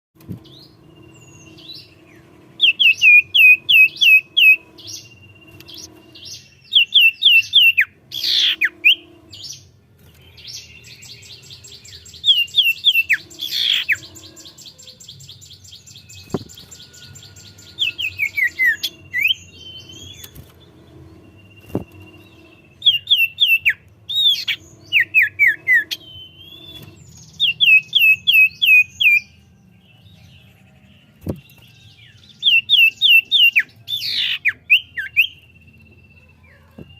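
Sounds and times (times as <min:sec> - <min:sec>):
faint low hum: 0:00.2 - 0:36.9
bird whistling song: 0:00.3 - 0:30.4, 0:31.1 - 0:36.9
bird buzzy rattle: 0:16.0 - 0:27.8.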